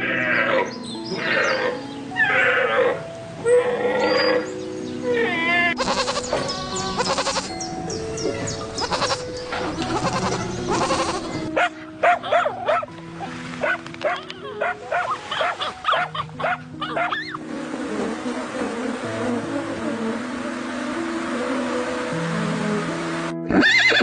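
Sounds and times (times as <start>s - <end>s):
animal calls: 5.1s - 12.8s
cheerful background music: 5.7s - 24.0s.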